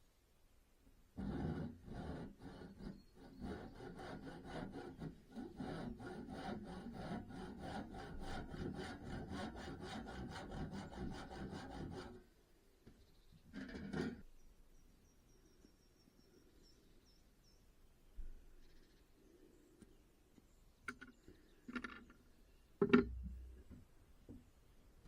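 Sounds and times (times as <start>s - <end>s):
hand saw cutting wood: 1.2s - 12.2s.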